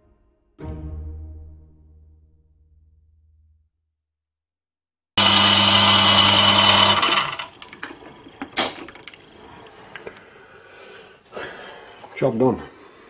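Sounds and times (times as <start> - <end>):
metal lathe humming and whining: 5.2 - 8.4.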